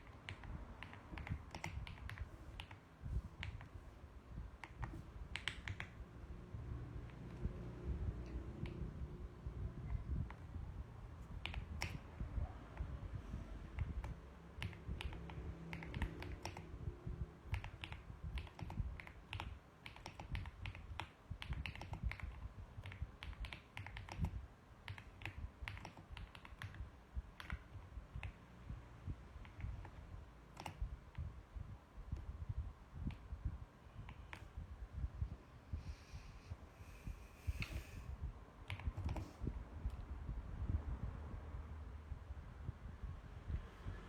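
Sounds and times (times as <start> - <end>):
mechanical keyboard typing: 0.0 - 3.8, 4.6 - 6.1, 11.3 - 12.1, 13.7 - 16.8, 17.4 - 28.4, 29.3 - 30.8, 38.6 - 39.4.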